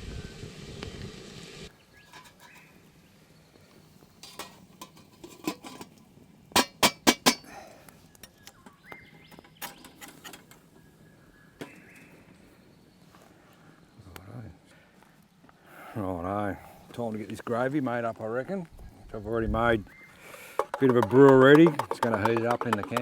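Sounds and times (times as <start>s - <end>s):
metal cookware clanking: 2.0s - 2.7s, 4.2s - 5.9s, 6.6s - 7.4s.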